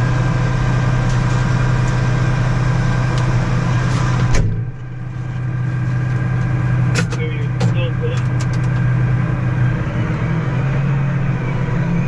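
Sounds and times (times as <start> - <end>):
farm machinery engine humming: 0.0 - 12.0.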